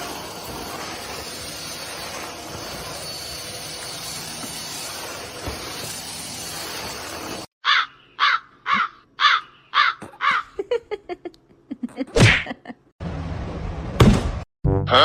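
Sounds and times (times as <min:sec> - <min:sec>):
animal harsh calls: 0:07.6 - 0:10.5.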